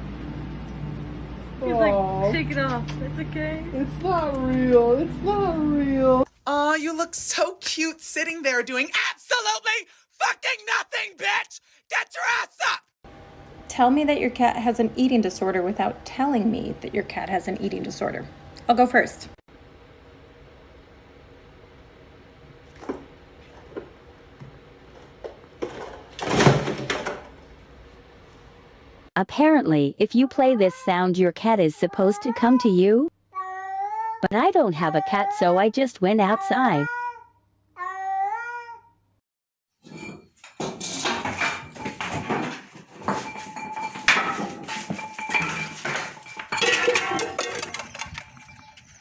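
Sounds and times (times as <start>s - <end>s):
metal clattering and clinking: 39.8s - 49.0s
ringing bell-like tone: 43.1s - 49.0s.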